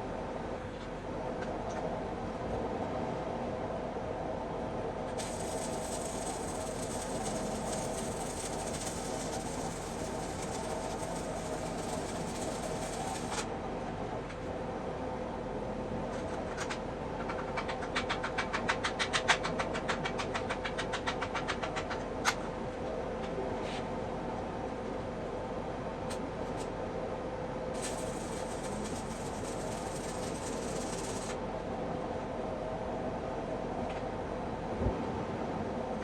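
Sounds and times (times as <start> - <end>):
mechanical drone with hiss: 5.1 - 13.5, 27.8 - 31.5
rapid sharp clicks: 5.2 - 13.4, 27.8 - 31.4.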